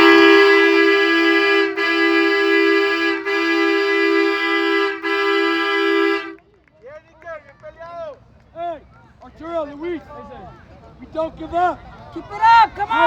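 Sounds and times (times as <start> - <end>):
two-note horn blasts: 0.0 - 6.4.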